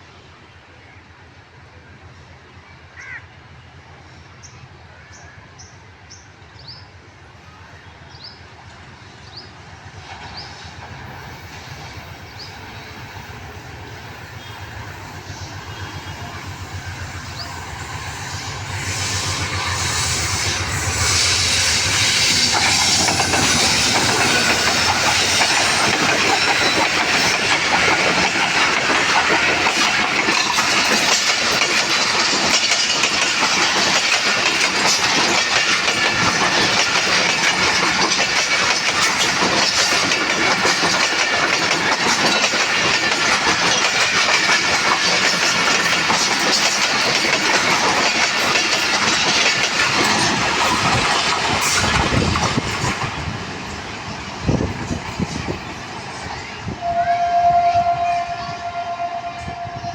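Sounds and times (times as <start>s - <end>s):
passenger train passing: 0.0s - 59.9s
wheels clattering over rails: 21.4s - 56.4s.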